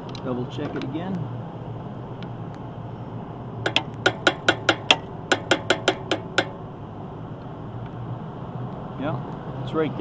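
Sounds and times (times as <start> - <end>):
hammer tapping metal pulley: 3.6 - 6.6.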